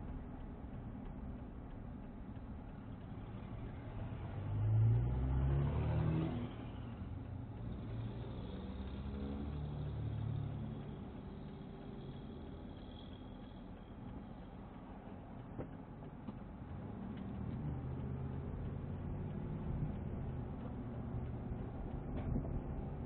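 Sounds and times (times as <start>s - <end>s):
road noise inside car: 0.0s - 23.0s
car engine revving: 3.4s - 13.5s, 16.7s - 23.0s.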